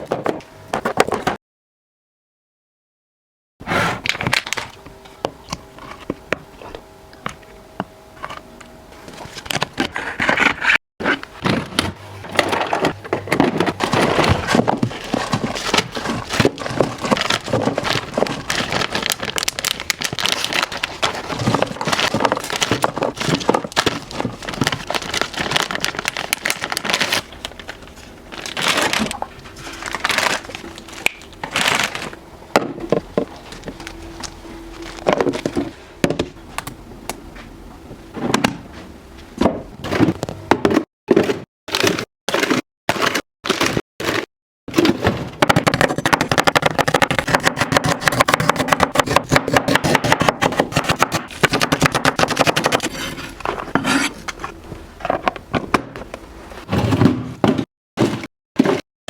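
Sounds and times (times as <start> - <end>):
plastic bags crinkling: 12.4 - 32.2.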